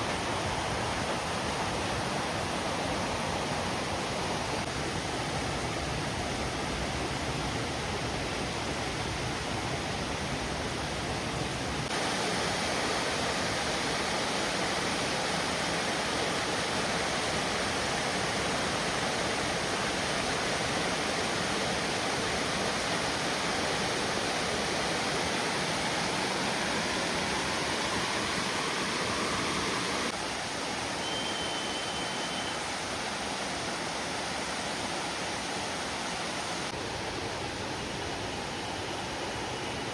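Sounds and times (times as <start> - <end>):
waterfall roaring: 0.0 - 39.9
high steady whistle: 25.7 - 33.5.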